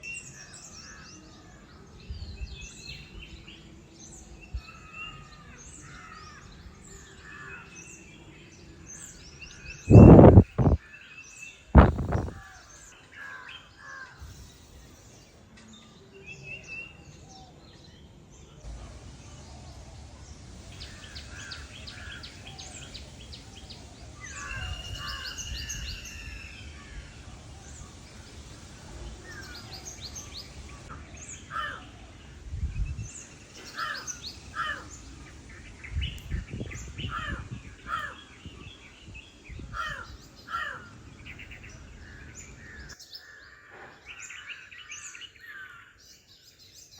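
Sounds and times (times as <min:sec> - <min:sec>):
birds chirping: 0:05.8 - 0:10.8, 0:11.8 - 0:13.4, 0:18.7 - 0:46.8
low microphone rumble: 0:09.9 - 0:10.8, 0:11.8 - 0:12.4.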